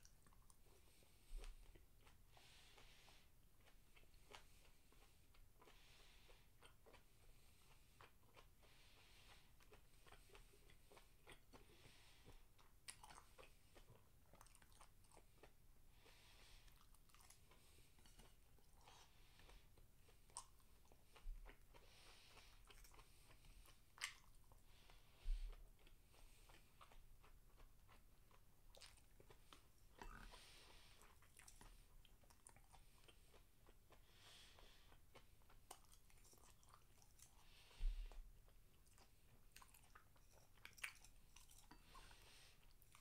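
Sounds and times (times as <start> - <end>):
close-up chewing: 0.0 - 43.0.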